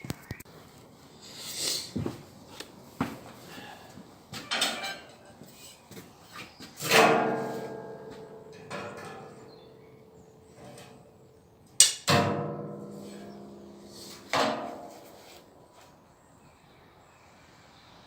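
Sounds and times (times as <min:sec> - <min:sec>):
steel parts clanging: 0:04.4 - 0:05.8, 0:11.8 - 0:12.2.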